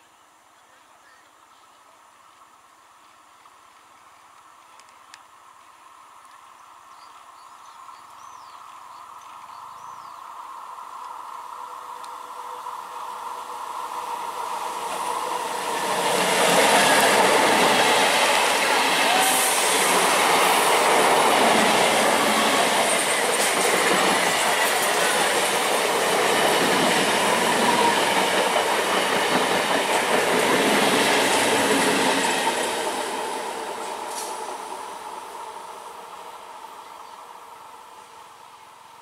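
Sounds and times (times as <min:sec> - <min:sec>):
train wheels rumbling on rails: 0:11.9 - 0:35.4.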